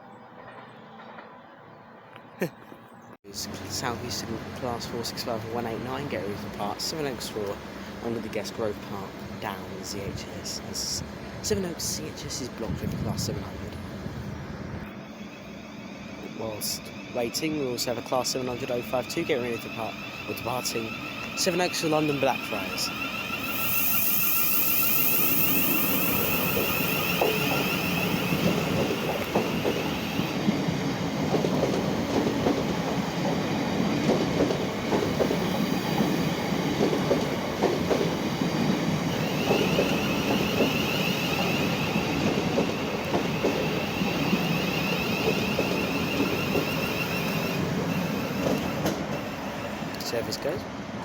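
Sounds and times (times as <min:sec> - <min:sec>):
train wheels clattering over rail joints: 0:16.6 - 0:49.6.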